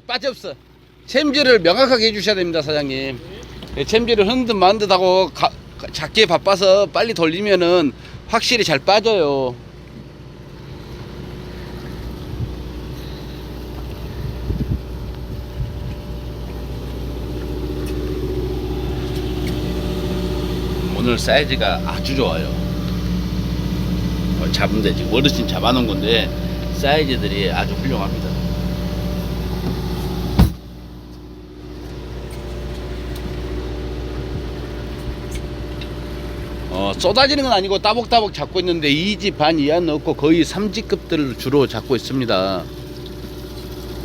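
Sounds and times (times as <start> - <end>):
boat motor humming: 0.6 - 6.7, 9.0 - 44.0
dull knocks: 28.6 - 30.7.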